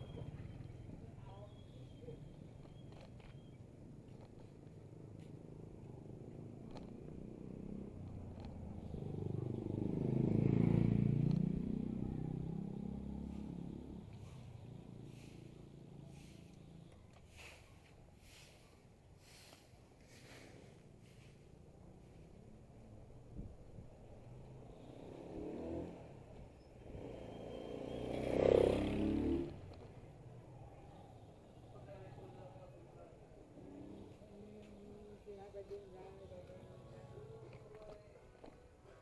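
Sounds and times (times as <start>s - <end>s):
motor vehicle passing by: 6.5s - 16.8s, 23.9s - 38.0s.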